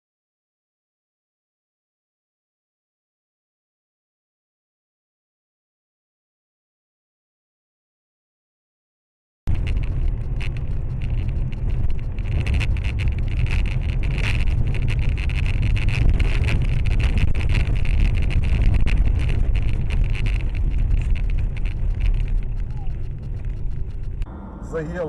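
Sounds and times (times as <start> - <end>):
small rattles and clicks: 9.5 - 24.3
car road and engine noise: 9.5 - 25.0.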